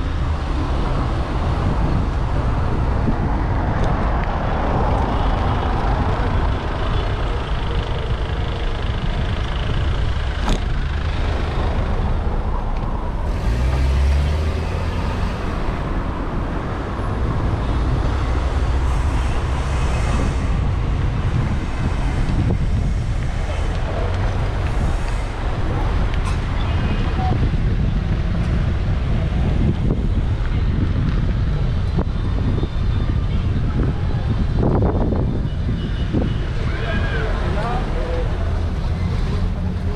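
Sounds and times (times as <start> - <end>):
cars and trucks passing: 0.0 - 39.9
wind rumble on microphone: 0.0 - 39.9
vehicle engine passing close: 13.1 - 26.5.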